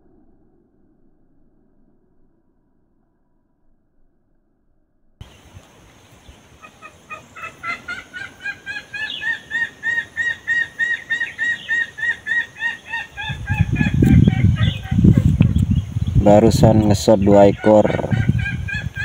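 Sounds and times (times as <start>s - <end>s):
bird calling: 5.2s - 19.0s
loud low rumbling: 13.2s - 19.0s.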